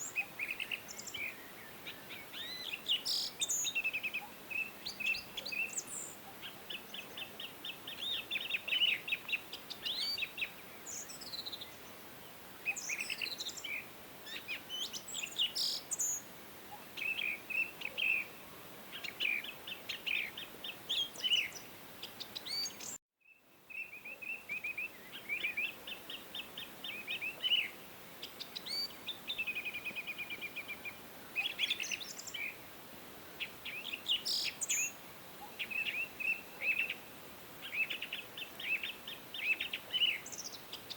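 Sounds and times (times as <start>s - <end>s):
songbirds singing and calling: 0.0s - 32.7s, 33.4s - 40.9s
faint background hiss: 0.0s - 40.9s.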